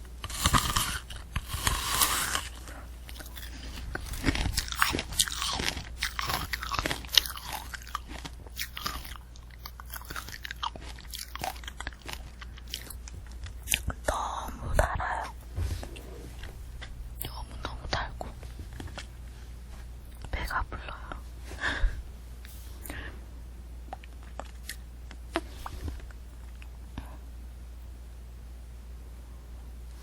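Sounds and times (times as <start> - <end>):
wet chewing: 0.1 - 14.2, 14.8 - 19.4, 23.9 - 26.7
hard candy shell crunching: 0.2 - 14.3.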